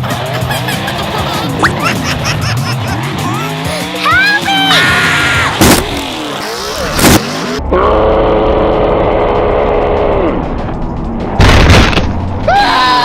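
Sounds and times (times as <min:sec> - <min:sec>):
cars crashing: 0:00.1 - 0:07.6.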